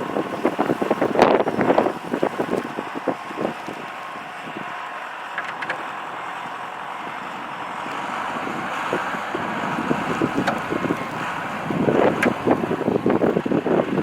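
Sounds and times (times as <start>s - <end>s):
heavy vehicle engine running: 0.0s - 14.0s
wind buffeting microphone: 0.0s - 14.0s.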